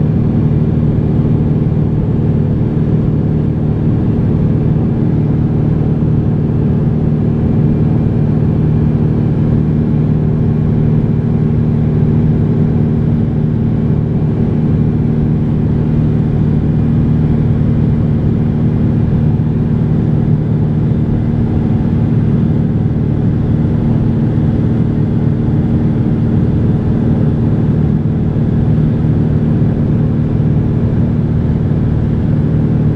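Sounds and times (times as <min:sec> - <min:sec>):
propeller plane engine drone: 0:00.0 - 0:32.9.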